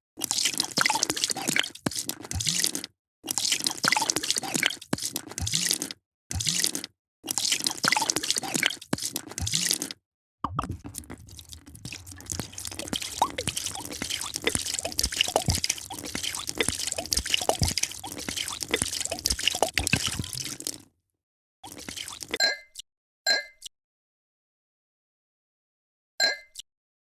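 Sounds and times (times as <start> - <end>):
bubbling plinks and drips: 10.4 - 20.8, 21.6 - 22.4
drink pouring into glass: 10.5 - 20.8, 21.6 - 22.4.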